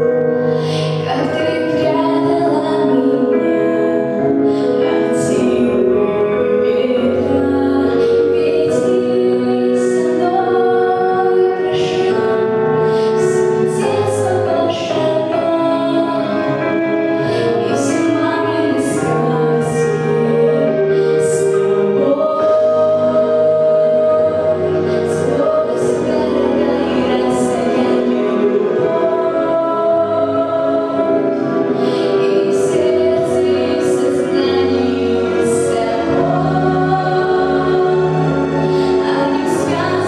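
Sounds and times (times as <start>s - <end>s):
instrumental accompaniment: 0.0s - 40.0s
girl singing: 0.5s - 16.5s.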